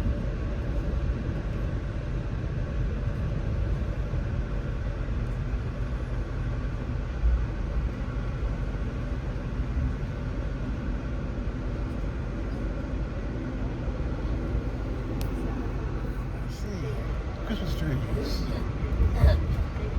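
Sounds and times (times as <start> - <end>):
train rumble from inside: 0.0 - 19.9.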